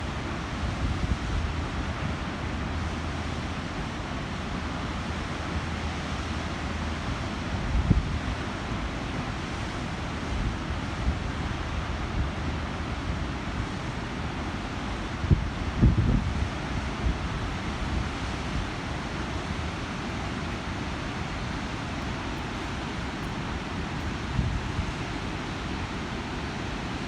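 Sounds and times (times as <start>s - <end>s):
wind buffeting microphone: 14.9s - 26.8s
water rushing through a gate: 16.6s - 27.0s.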